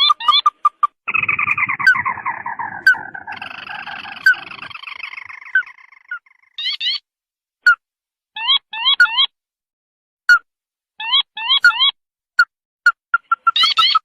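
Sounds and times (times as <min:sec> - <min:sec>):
bird chattering trill: 0:00.0 - 0:07.0, 0:13.1 - 0:14.0
bird short rising calls: 0:01.1 - 0:06.7.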